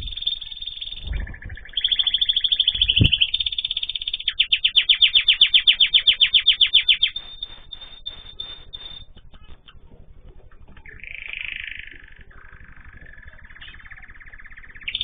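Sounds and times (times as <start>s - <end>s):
dull low thumps: 0.0s - 3.8s
birds singing in trills: 0.0s - 15.0s.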